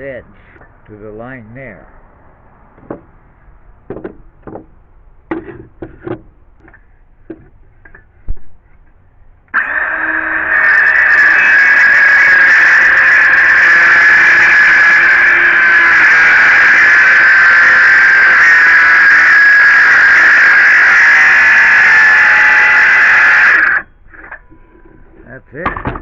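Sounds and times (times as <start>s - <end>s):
knocks and clicks of saw handling: 2.8s - 3.1s, 3.9s - 4.7s, 5.3s - 8.5s
circular saw cutting wood: 9.5s - 25.3s.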